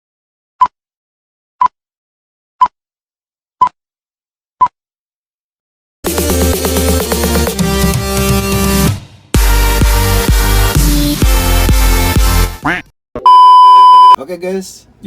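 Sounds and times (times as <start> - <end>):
electronic dance music: 6.0 - 12.8.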